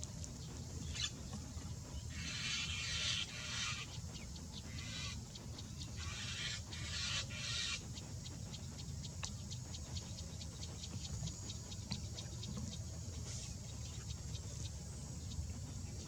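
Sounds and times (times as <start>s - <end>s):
bird harsh hissing calls: 2.0s - 8.4s.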